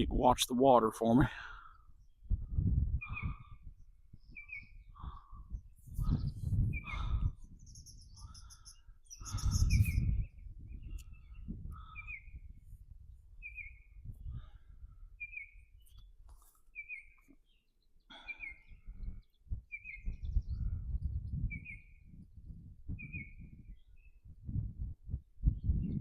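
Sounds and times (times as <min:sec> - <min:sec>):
bird chirping: 0:03.0 - 0:12.5, 0:13.4 - 0:14.0, 0:15.2 - 0:22.2.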